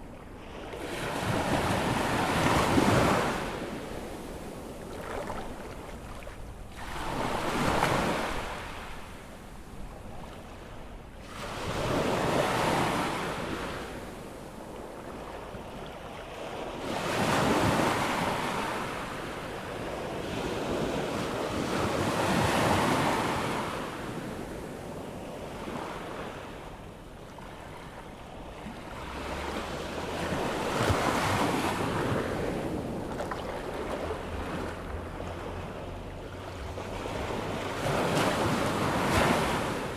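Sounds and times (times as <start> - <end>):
ocean waves breaking on beach: 0.0 - 39.9
wind rumble on microphone: 27.6 - 39.9.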